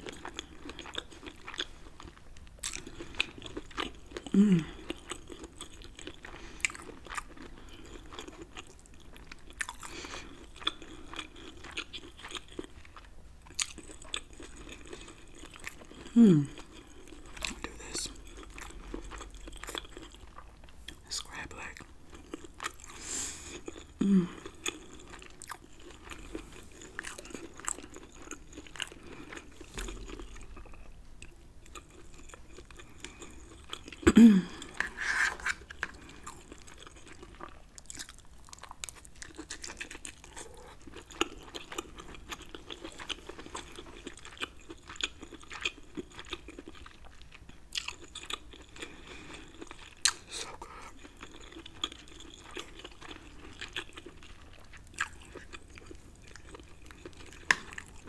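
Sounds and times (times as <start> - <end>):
chewing with wet mouth clicks: 0.0 - 58.0.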